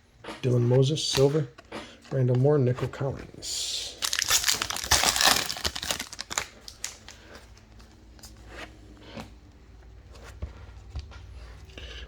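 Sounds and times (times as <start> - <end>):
foil wrapper crinkling and tearing: 4.0 - 7.3.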